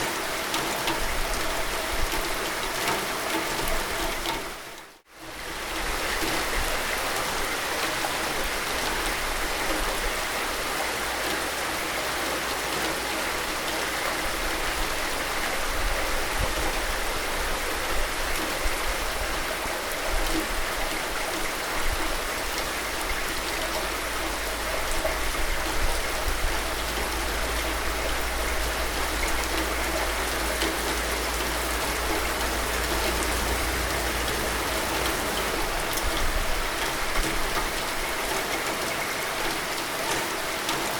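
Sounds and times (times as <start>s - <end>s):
steady rain: 0.0s - 40.9s
rain drop taps: 24.5s - 36.2s.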